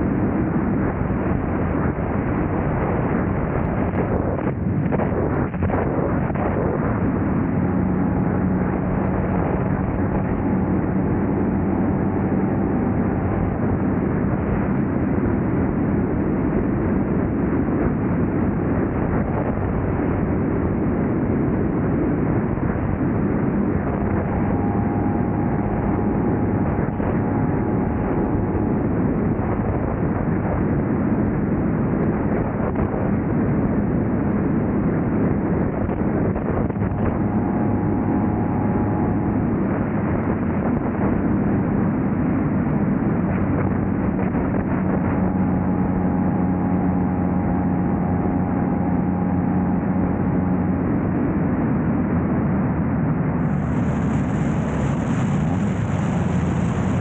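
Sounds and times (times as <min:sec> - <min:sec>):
road and wind noise: 0:00.0 - 0:57.0
car engine running: 0:53.4 - 0:57.0.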